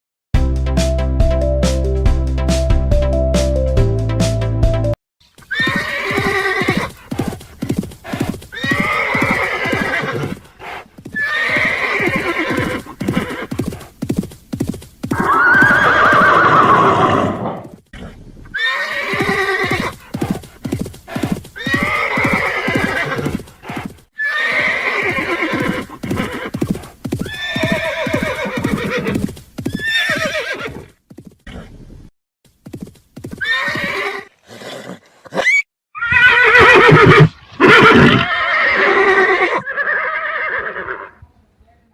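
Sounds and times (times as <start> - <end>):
horses neighing: 5.4 - 14.0, 15.0 - 30.9, 33.4 - 41.2.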